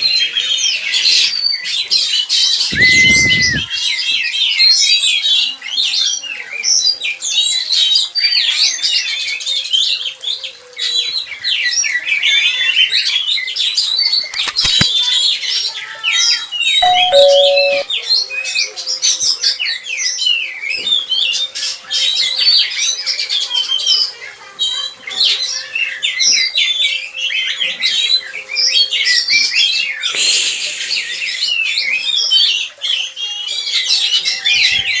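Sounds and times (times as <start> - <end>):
birds chirping and calling: 2.7 - 3.7
low two-note tone: 16.8 - 17.8.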